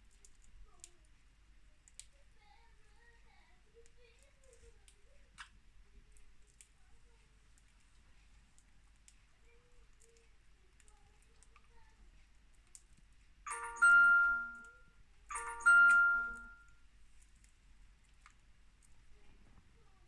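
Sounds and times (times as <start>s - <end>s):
ringing chime: 13.5s - 16.7s.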